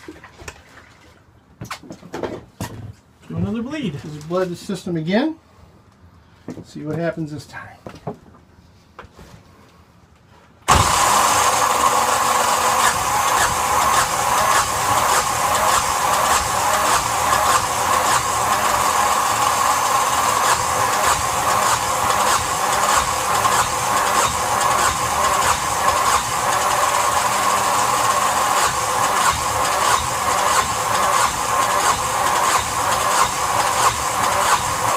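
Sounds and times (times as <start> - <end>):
diesel engine running: 10.7 - 34.9.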